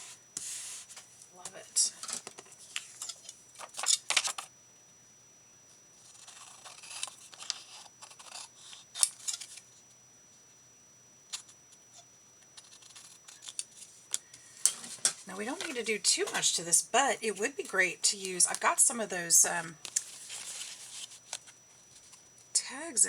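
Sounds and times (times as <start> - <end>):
paper rustling and sliding: 0.0 - 1.1, 20.0 - 22.2.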